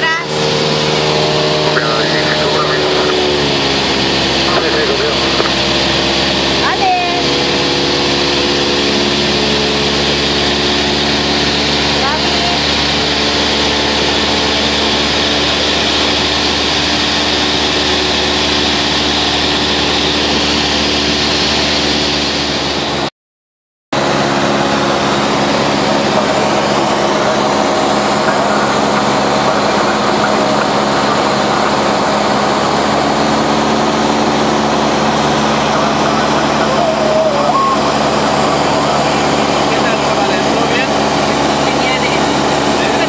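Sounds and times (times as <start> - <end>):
light aircraft engine and propeller: 0.0 - 23.1, 24.0 - 43.0.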